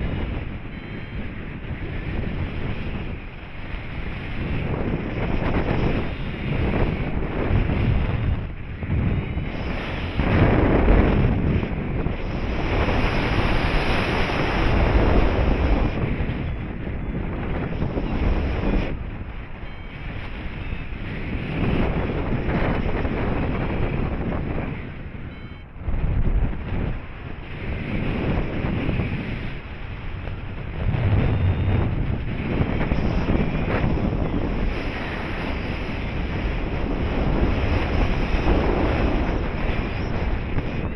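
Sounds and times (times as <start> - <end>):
wind rushing over microphone: 0.0 - 40.9
low rumble: 22.6 - 34.9.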